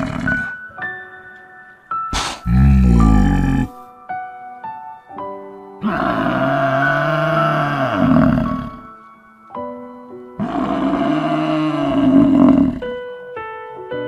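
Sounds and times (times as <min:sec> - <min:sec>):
large animal roaring: 0:00.0 - 0:00.5, 0:02.2 - 0:03.8, 0:05.8 - 0:08.9, 0:10.4 - 0:12.9
soft piano music: 0:00.0 - 0:14.0.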